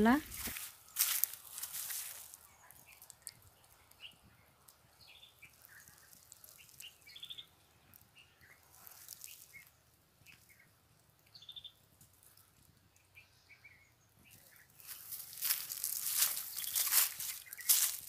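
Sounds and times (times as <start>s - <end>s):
faint birds chirping: 0.0s - 18.0s
bird trill: 11.3s - 11.8s.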